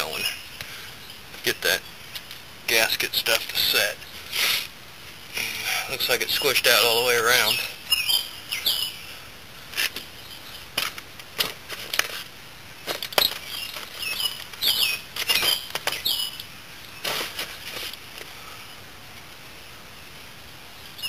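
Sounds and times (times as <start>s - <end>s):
bird chirping: 5.4s - 9.2s, 12.8s - 17.0s.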